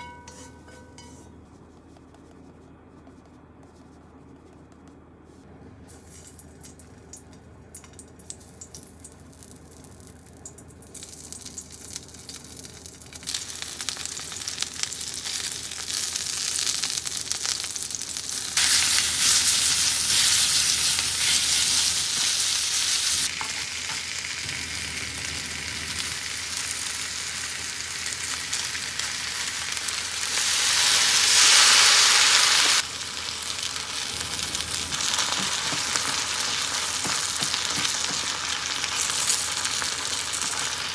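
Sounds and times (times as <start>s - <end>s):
food sizzling in a frying pan: 10.9s - 40.9s.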